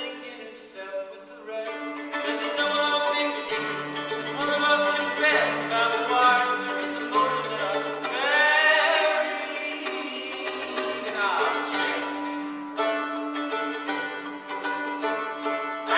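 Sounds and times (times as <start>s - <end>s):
man singing: 0.0s - 12.4s.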